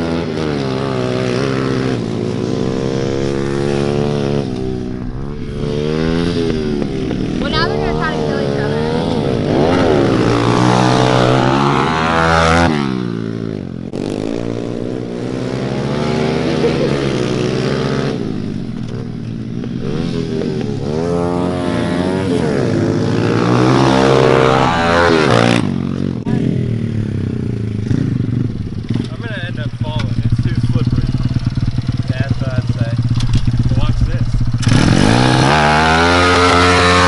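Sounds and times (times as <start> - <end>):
small motorbike engine revving: 0.0 - 37.0.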